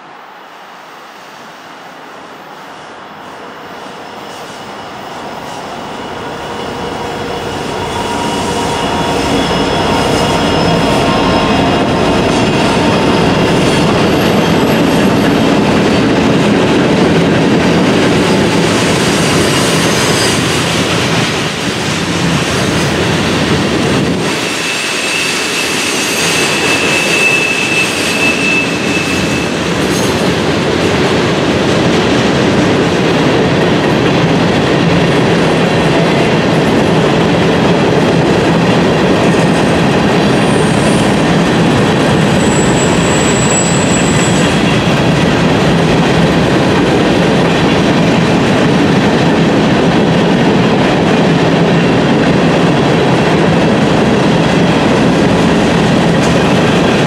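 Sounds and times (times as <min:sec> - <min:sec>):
diesel locomotive engines: 0:00.0 - 0:57.0
high wheel squeal: 0:04.1 - 0:14.8, 0:24.3 - 0:30.2, 0:42.2 - 0:44.8.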